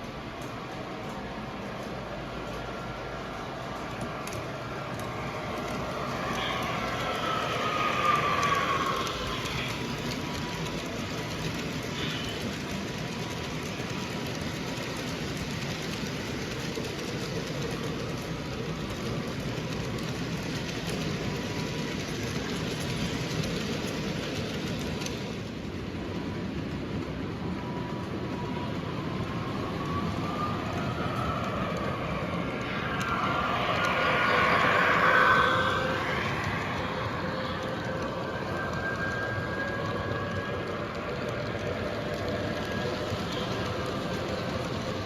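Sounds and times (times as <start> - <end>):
model train rumble: 0.0 - 45.0
gliding pitched tone: 29.8 - 45.0.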